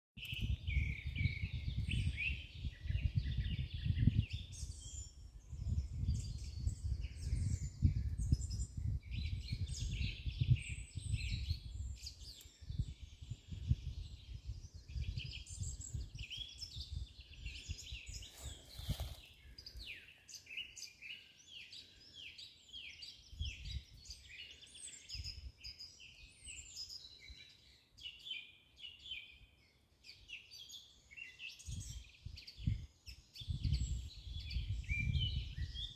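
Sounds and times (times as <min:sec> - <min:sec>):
birds singing and chirping: 0:00.2 - 0:35.9.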